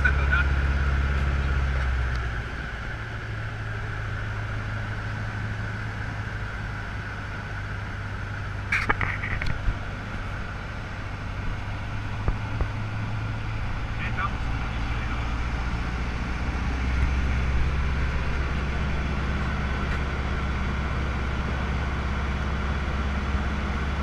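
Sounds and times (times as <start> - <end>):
aircraft engine running: 0.0 - 24.0
clicks and crackle: 8.7 - 9.6.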